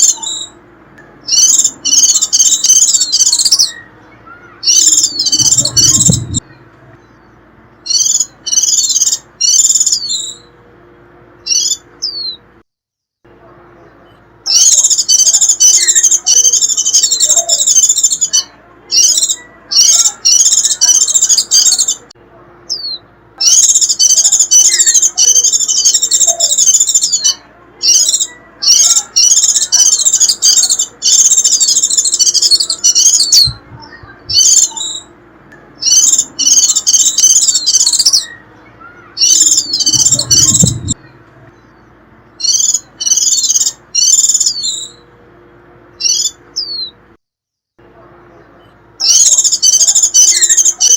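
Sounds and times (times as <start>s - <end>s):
white-eye twittering call: 1.2s - 10.6s, 22.7s - 35.2s, 35.8s - 45.1s, 49.0s - 50.9s.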